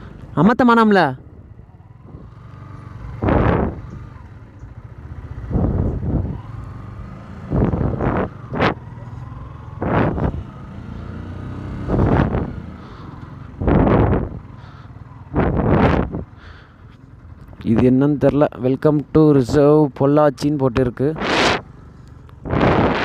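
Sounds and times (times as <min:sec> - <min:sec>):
motorcycle engine running: 0:01.2 - 0:20.0, 0:21.1 - 0:23.0
loud rushing bursts: 0:21.2 - 0:21.7, 0:22.5 - 0:23.0.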